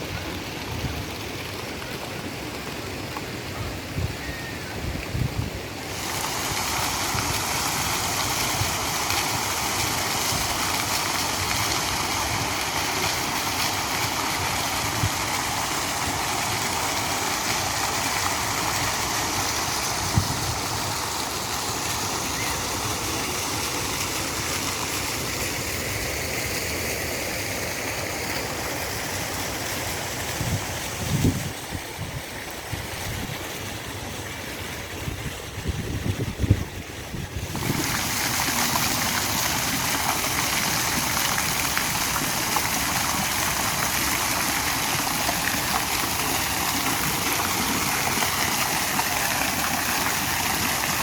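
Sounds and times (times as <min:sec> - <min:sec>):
running splashing water: 0:04.2 - 0:51.0.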